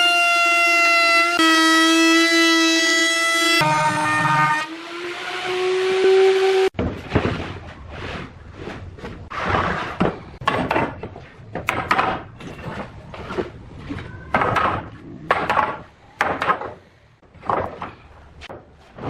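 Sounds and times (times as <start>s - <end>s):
wood scraping: 6.8s - 15.9s, 16.6s - 19.0s
wood knocking: 10.0s - 13.5s, 14.3s - 19.0s.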